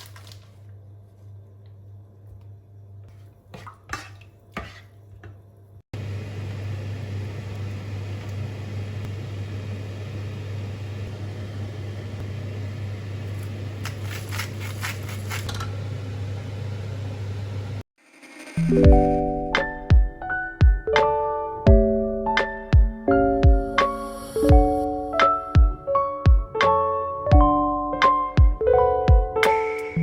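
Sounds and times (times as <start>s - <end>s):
utensils clinking: 13.3s - 15.8s.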